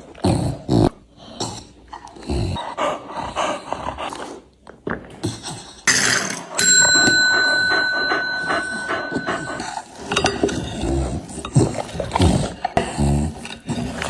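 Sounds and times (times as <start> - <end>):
dogs growling: 0.0 - 4.6, 7.2 - 14.0
metal bowl ringing: 6.6 - 10.6.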